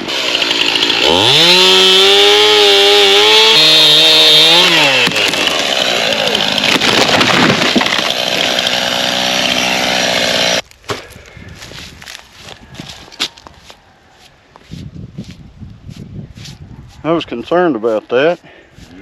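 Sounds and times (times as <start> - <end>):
chainsaw cutting and idling: 0.0 - 10.6
tree cracking and crashing: 3.4 - 13.5.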